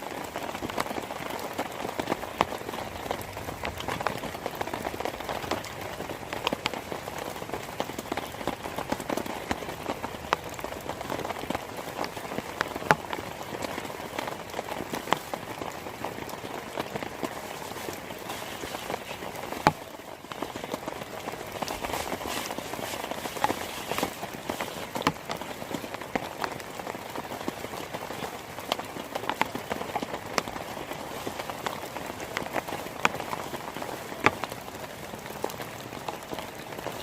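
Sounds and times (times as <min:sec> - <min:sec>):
heavy rain falling: 0:00.0 - 0:37.0.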